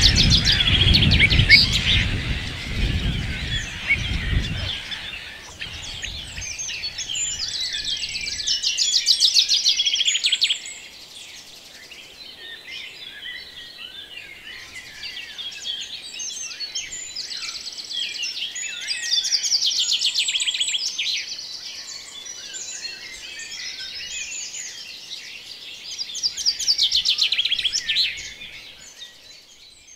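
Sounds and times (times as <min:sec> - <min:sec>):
fast rattling bird trill: 0:00.0 - 0:07.8
songbirds chirping and whistling: 0:00.0 - 0:29.9.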